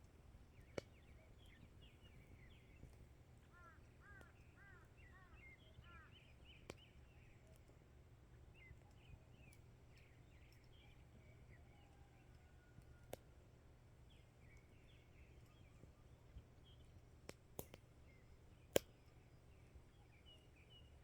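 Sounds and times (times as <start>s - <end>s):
small birds chirping: 0.0s - 12.5s, 14.0s - 21.0s.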